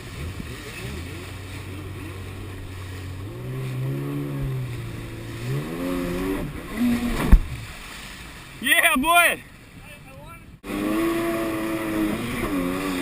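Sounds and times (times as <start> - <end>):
jet ski engine revving: 0.0 - 9.1, 10.4 - 13.0.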